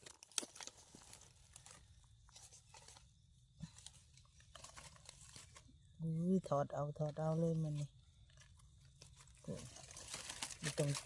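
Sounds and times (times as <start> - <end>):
dry leaves crackling and rustling: 0.0 - 3.0, 3.6 - 5.7, 8.3 - 11.0.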